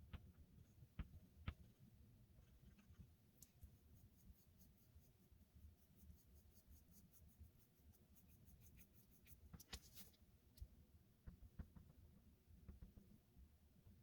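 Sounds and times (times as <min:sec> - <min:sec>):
pastel scratching on paper: 0:03.6 - 0:10.2.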